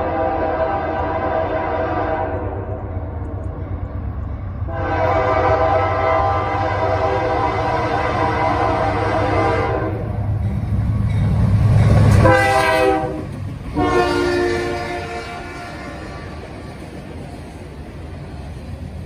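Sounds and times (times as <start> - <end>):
train horn blasts: 0.0 - 3.0, 4.6 - 10.2, 12.2 - 16.5
diesel locomotive engine rumble: 0.0 - 19.0
freight cars rolling on rails: 2.4 - 19.0.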